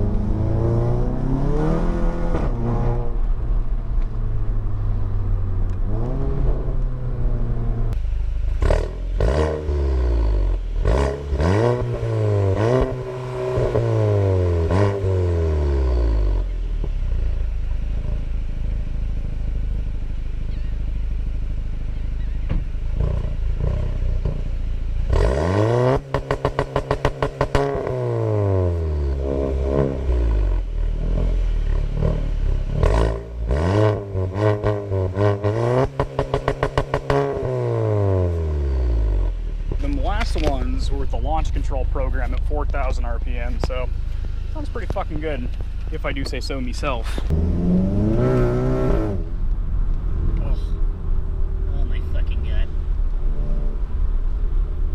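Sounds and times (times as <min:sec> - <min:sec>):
car engine accelerating through gears: 0:00.0 - 0:17.3, 0:21.9 - 0:40.6, 0:46.8 - 0:51.8
exhaust crackles: 0:00.0 - 0:54.9.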